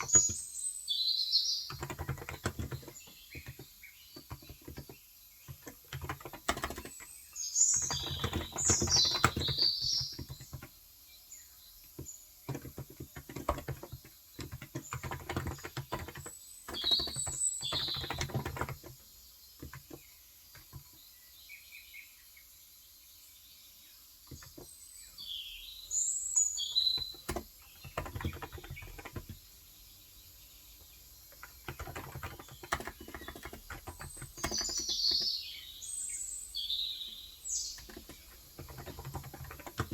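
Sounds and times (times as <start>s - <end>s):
keyboard typing: 0.0s - 0.6s, 1.6s - 10.8s, 11.8s - 20.9s, 26.5s - 29.6s, 30.8s - 35.8s, 37.0s - 39.9s
birds chirping: 0.0s - 39.9s.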